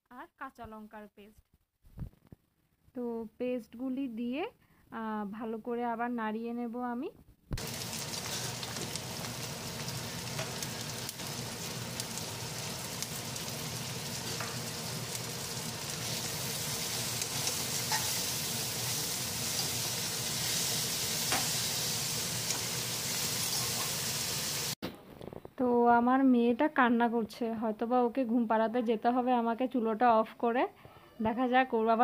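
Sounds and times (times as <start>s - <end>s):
onions sizzling in oil: 7.6s - 24.8s
metal spatula scraping pans: 17.3s - 18.4s, 23.4s - 24.0s.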